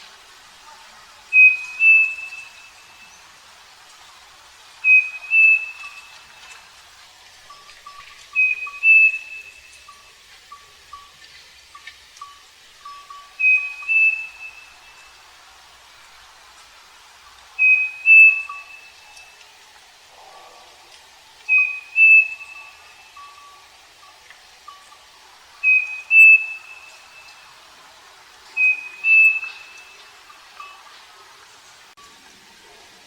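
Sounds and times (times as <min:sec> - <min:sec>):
bird two-note whistled song: 0:01.3 - 0:03.2, 0:04.8 - 0:06.2, 0:07.8 - 0:10.0, 0:12.2 - 0:15.2, 0:17.6 - 0:19.4, 0:21.5 - 0:23.6, 0:25.6 - 0:27.4, 0:28.6 - 0:30.8.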